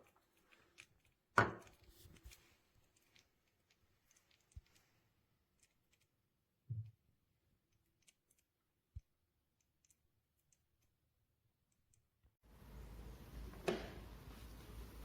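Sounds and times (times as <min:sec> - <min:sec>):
faint clicks and ticks: 0:00.0 - 0:06.2.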